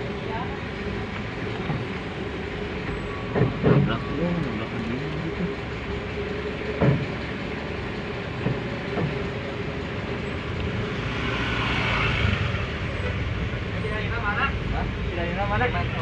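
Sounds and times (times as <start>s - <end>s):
heavy vehicle engine running: 0.0s - 16.0s
road noise: 0.0s - 16.0s
knocks: 6.8s - 7.1s
passing vehicle hiss: 10.8s - 12.9s.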